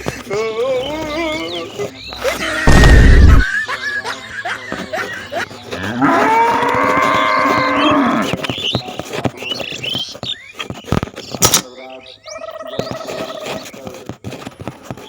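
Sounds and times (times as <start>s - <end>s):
cow mooing: 5.8s - 8.3s.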